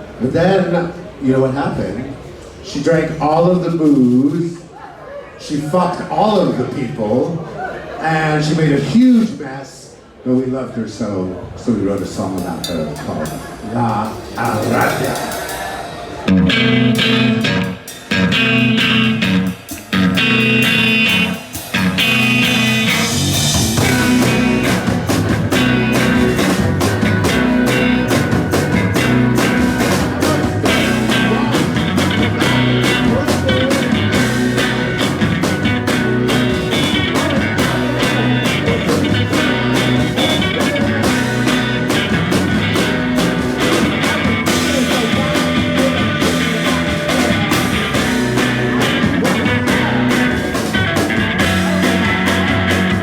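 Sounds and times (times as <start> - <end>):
live rock band playing: 12.4 - 53.0.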